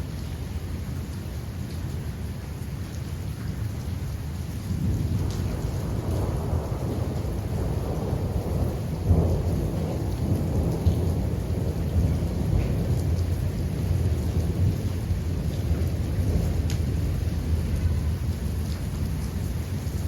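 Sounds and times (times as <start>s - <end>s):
steady rain: 0.0s - 20.0s
low rumble of thunder: 4.4s - 20.0s.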